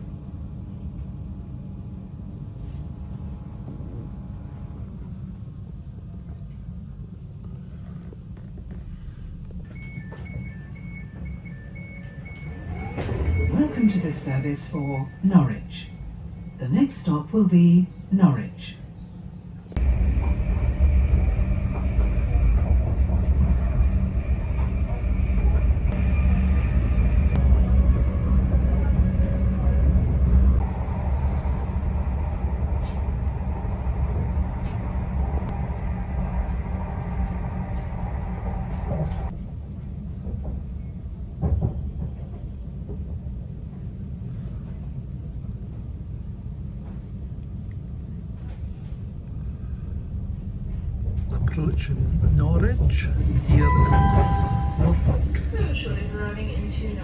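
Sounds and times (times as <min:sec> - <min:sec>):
train rumble: 0:00.0 - 0:57.0
higher hum: 0:52.1 - 0:57.0.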